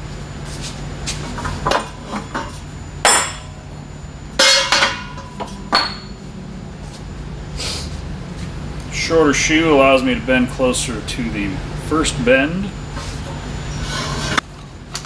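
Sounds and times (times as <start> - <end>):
metallic clanks: 4.3 - 6.2.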